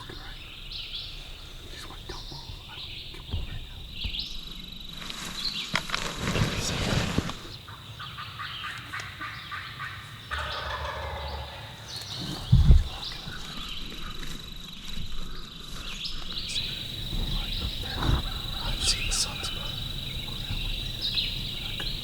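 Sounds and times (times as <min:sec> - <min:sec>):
turkey gobbling: 0:07.7 - 0:13.6, 0:16.4 - 0:22.0
high insect drone: 0:10.4 - 0:22.0
low thump: 0:12.3 - 0:13.2.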